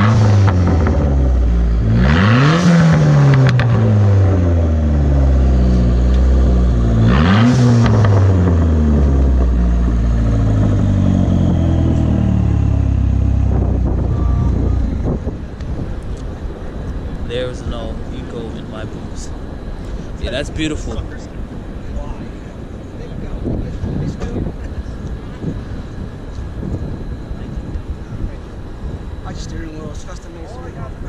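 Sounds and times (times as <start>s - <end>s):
car engine revving and idling: 0.0s - 15.9s.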